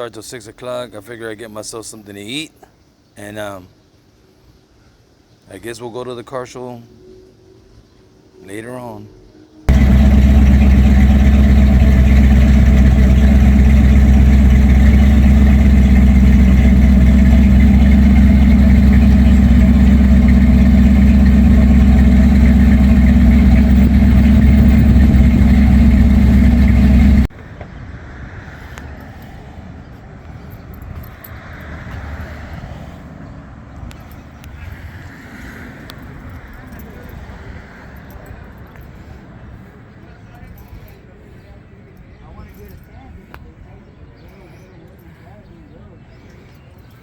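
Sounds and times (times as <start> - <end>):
quiet outdoor background: 0.0 - 47.0
car engine and exhaust droning: 9.7 - 27.3.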